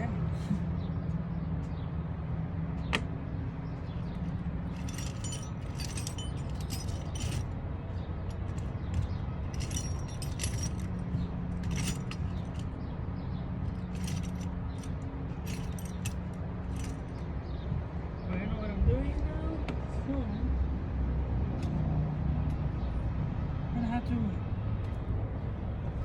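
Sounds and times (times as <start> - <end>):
metal tools and sockets clinking: 4.7 - 7.5, 8.3 - 12.8, 13.6 - 17.2.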